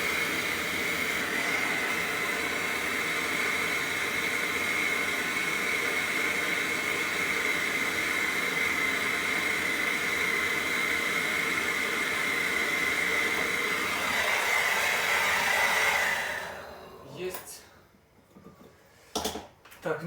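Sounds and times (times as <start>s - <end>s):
torch flame hissing: 0.0s - 17.6s.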